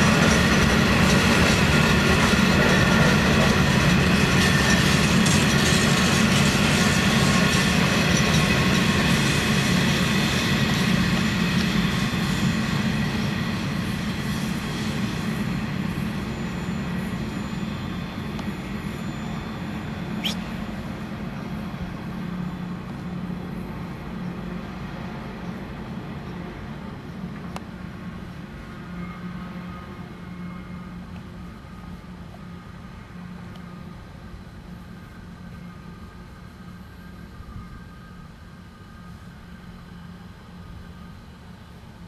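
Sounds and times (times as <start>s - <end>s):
train wheels rumbling on rail: 0.0s - 42.0s
wheel squeal: 16.0s - 20.7s
brief high squeak: 20.0s - 20.6s.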